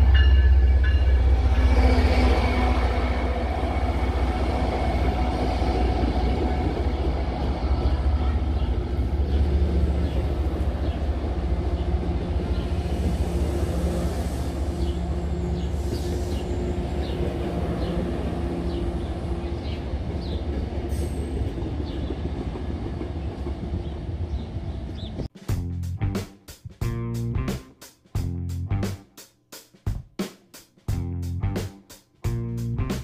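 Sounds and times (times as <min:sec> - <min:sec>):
train wheels rumbling on rails: 0:00.0 - 0:25.6.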